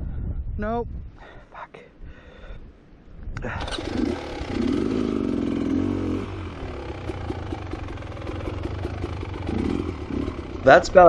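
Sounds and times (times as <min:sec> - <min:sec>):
dirt bike engine revving: 0:03.5 - 0:11.0.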